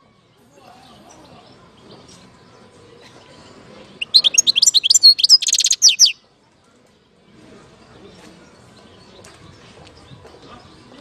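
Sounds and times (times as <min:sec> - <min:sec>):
finch twittering song: 0:04.0 - 0:06.2.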